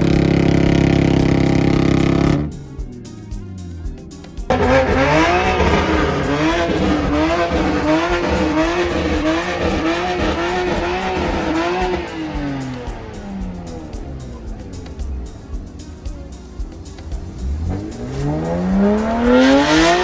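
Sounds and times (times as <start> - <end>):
car engine revving: 0.0 - 2.7, 4.5 - 20.0
tyre noise: 4.4 - 20.0.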